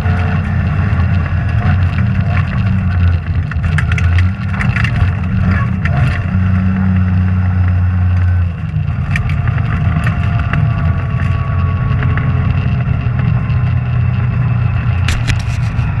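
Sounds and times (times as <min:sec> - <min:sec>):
car engine droning: 0:00.0 - 0:16.0
sharp clicks and knocks: 0:15.0 - 0:16.0.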